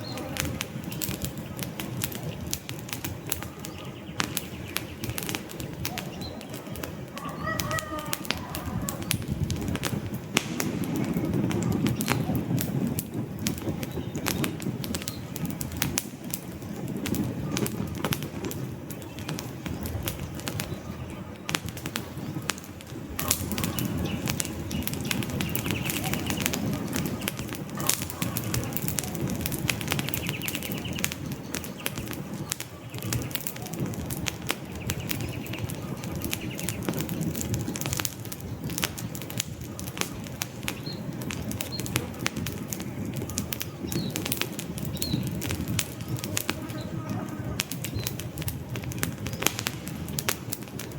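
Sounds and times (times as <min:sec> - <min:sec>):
campfire crackling and popping: 0:00.0 - 0:50.9
faint bird calls: 0:03.3 - 0:09.3, 0:20.4 - 0:37.0.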